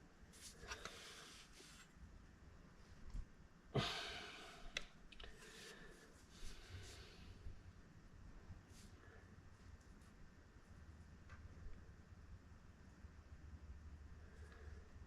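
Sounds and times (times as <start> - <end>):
person exhaling: 3.8 - 4.8.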